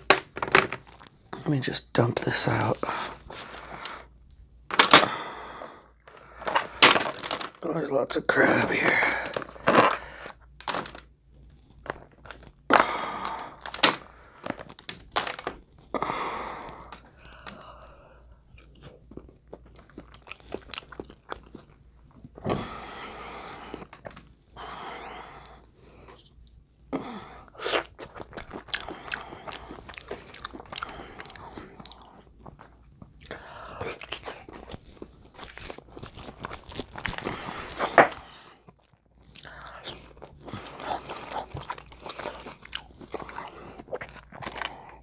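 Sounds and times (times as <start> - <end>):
crab shells cracking: 6.0 - 7.6, 11.8 - 15.8
close-up chewing: 11.3 - 45.0.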